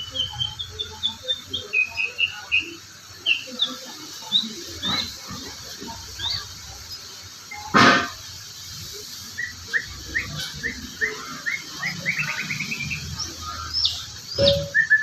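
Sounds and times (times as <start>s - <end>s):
songbird chirping and trilling: 0.0s - 7.8s, 9.2s - 15.0s
sharp knock: 7.8s - 8.2s.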